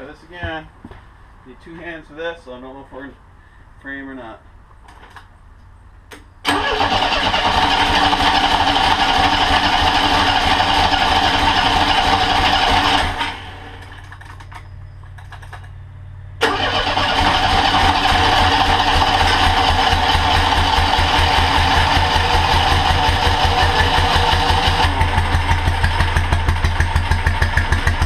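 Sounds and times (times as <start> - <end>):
trike engine starting and running: 6.1 - 28.0.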